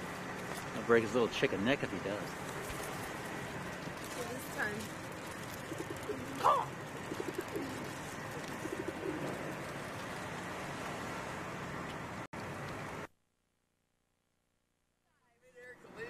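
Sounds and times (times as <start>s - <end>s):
birds calling: 2.2s - 10.2s.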